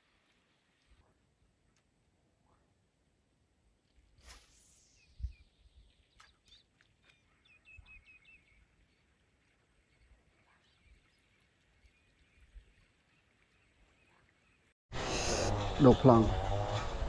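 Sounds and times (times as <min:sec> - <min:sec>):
small bird chirping: 0:04.2 - 0:15.4.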